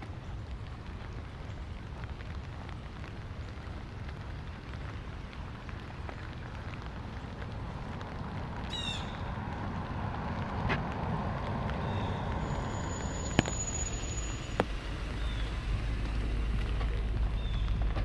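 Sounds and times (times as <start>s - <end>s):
light rain hissing: 0.0s - 18.0s
water drips ticking: 0.0s - 18.0s
car approaching: 2.0s - 18.0s
bird chirping: 8.6s - 9.3s, 11.8s - 18.0s.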